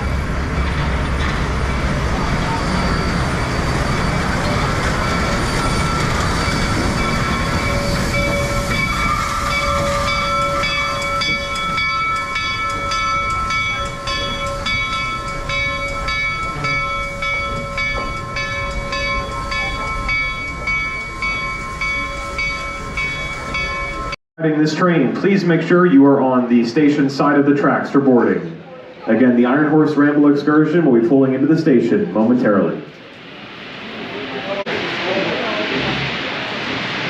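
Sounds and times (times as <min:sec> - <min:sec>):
locomotive bell ringing: 0:00.0 - 0:24.2
steam locomotive rumble: 0:00.0 - 0:26.5, 0:29.8 - 0:37.0.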